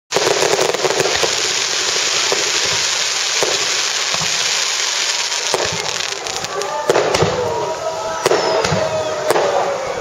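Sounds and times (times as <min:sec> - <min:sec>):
sharp pops and bangs: 0:00.1 - 0:07.5
fireworks crackling: 0:00.1 - 0:10.0.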